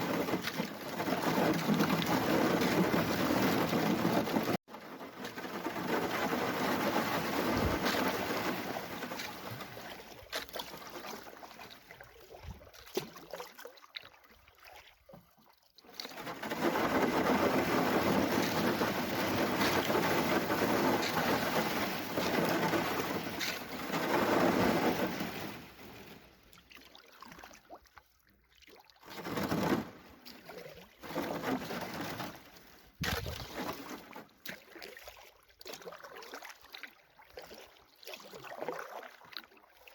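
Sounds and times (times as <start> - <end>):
rushing water and hull noise: 15.9 - 26.0.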